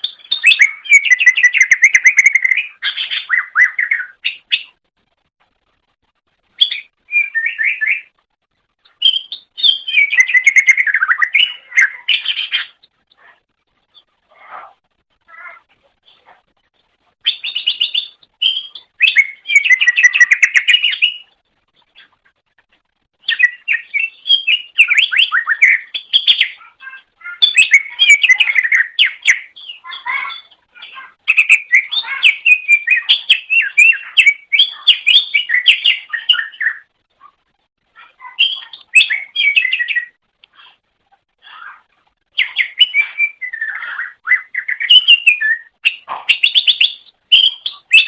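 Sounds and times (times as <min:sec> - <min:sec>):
bird singing chirps and whistles: 0:00.0 - 0:04.8, 0:06.6 - 0:08.2, 0:09.0 - 0:12.8, 0:17.2 - 0:21.4, 0:23.2 - 0:36.9, 0:38.2 - 0:40.2, 0:42.4 - 0:48.0.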